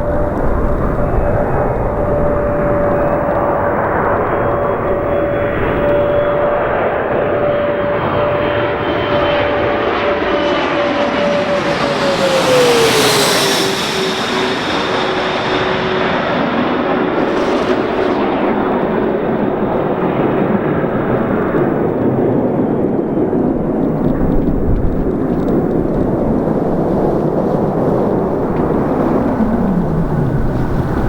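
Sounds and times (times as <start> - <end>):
jet passing by: 0.0 - 31.0.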